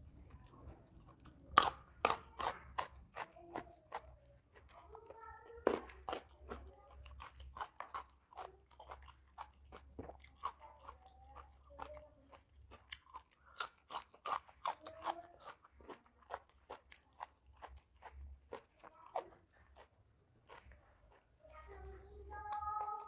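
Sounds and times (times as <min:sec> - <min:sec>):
crunchy food chewing: 0:00.0 - 0:23.0.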